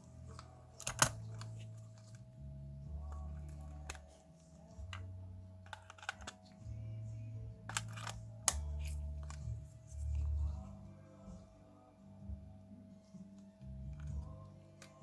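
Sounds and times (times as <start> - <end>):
music with low bass line: 0.0 - 15.0.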